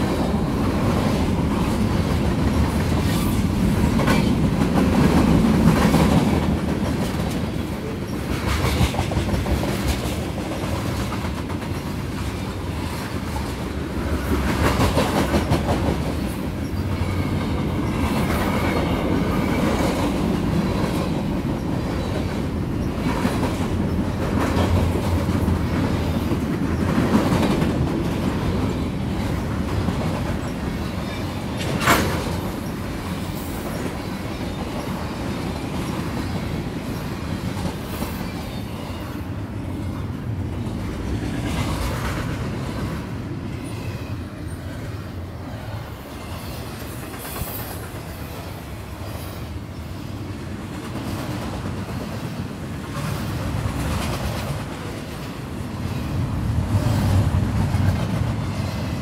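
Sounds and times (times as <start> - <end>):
wheels clacking over rail joints: 0.0 - 39.2
train wheels rumbling on rails: 0.0 - 59.0.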